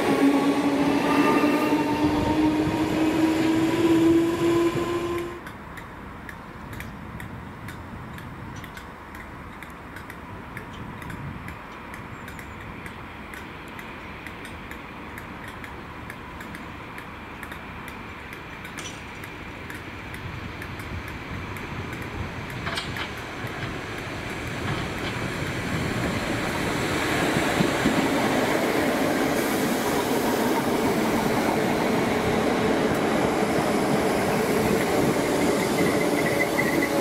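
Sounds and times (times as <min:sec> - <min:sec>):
electric train rumble: 0:00.0 - 0:06.3, 0:10.3 - 0:37.0
light ticking: 0:05.4 - 0:25.2.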